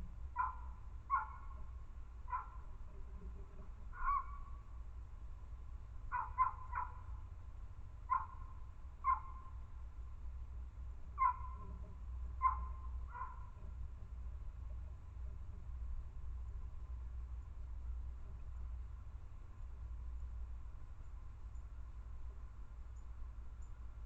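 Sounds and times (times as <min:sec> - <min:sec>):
animal calling: 0:00.4 - 0:01.7, 0:02.3 - 0:04.6, 0:06.1 - 0:07.1, 0:08.1 - 0:09.6, 0:11.2 - 0:13.8.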